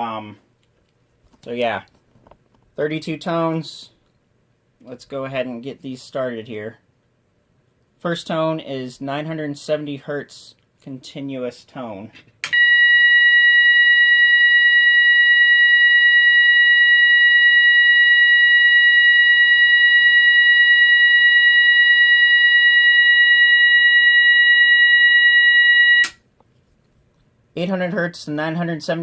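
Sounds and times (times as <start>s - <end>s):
alarm sounder continuous tone: 12.5s - 26.2s.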